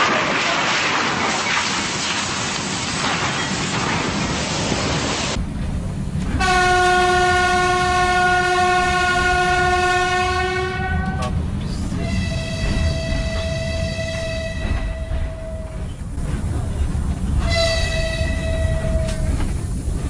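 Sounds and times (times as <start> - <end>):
hiss like heavy rain: 0.0 - 5.4
moving train rumble: 0.0 - 20.0
higher train horn note: 6.4 - 15.8, 17.4 - 19.4
train horn blast: 6.4 - 15.8, 17.4 - 19.4.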